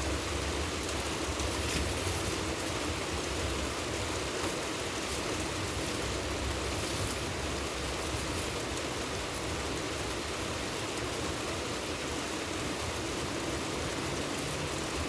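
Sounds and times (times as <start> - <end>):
steady rainfall hiss: 0.0 - 15.0.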